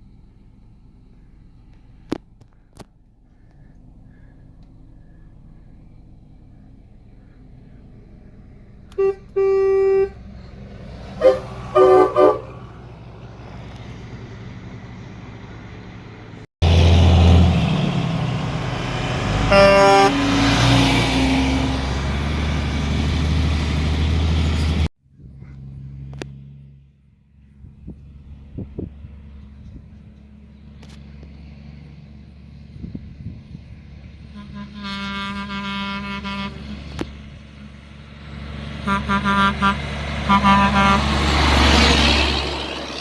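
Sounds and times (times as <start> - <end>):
deep engine running: 0.0 - 43.0
truck horns honking: 8.9 - 15.8, 16.6 - 24.9, 34.1 - 43.0.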